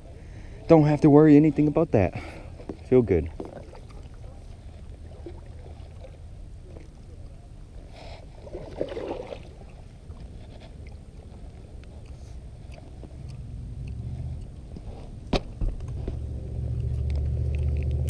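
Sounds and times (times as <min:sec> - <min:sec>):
paddle strokes in water: 0:02.5 - 0:13.2
steady low rumble: 0:09.4 - 0:18.0.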